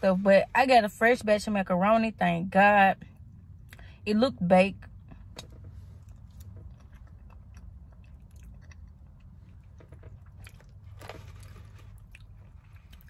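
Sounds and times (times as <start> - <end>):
steady low hum: 0.0 - 13.0
wet mouth clicks chewing: 6.1 - 10.7.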